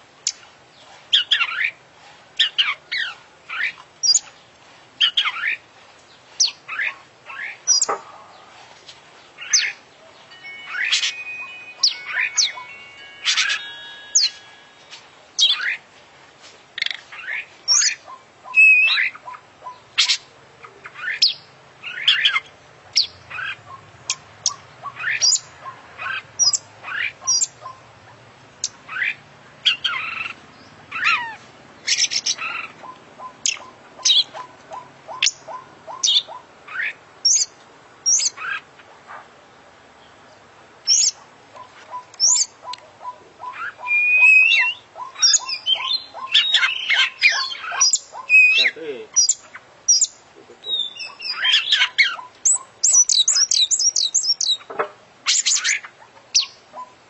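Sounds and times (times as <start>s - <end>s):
bird singing whistled notes: 9.4s - 15.8s, 17.7s - 19.1s, 41.9s - 54.6s.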